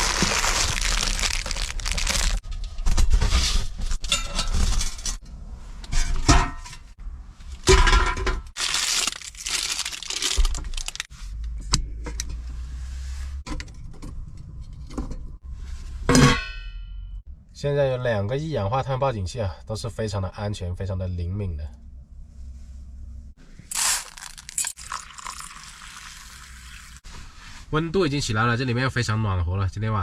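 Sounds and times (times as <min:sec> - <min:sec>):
packaging rustling and tearing: 0:00.0 - 0:02.4, 0:08.6 - 0:11.1, 0:23.7 - 0:25.4
charcoal and metal clinking: 0:23.7 - 0:25.8.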